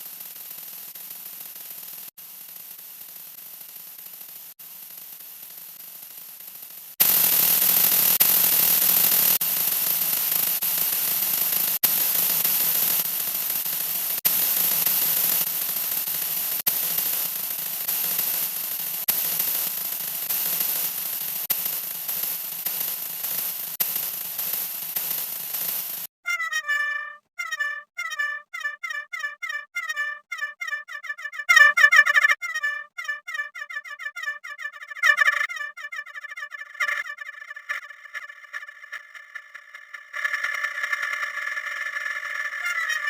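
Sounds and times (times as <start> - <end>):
static-like noise: 0.0 - 26.1, 36.5 - 43.0.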